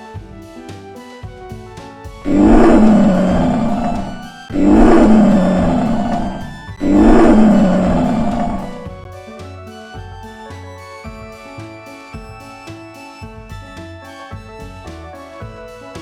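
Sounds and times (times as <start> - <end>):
background music: 0.0 - 16.0
big cat roaring: 2.2 - 9.0.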